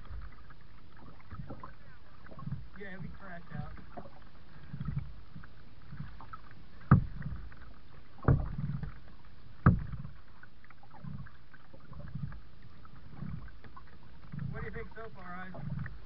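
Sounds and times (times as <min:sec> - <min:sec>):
paddle water swishes: 0:00.0 - 0:16.0
sharp knocks: 0:08.2 - 0:08.6, 0:09.6 - 0:10.1.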